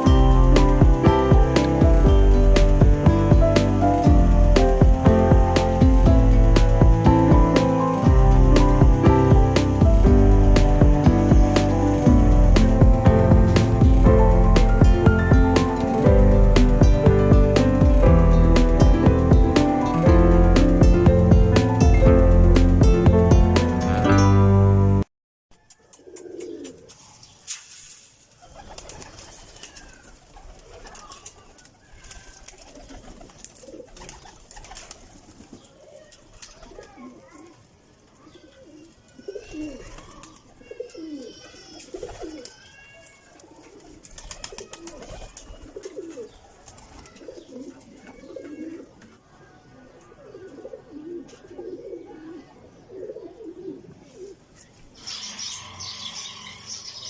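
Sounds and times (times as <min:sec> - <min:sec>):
pigeons cooing: 0:25.9 - 0:27.0, 0:32.2 - 0:37.6, 0:38.3 - 0:42.7, 0:43.4 - 0:55.6
high chirping calls: 0:55.0 - 0:57.0.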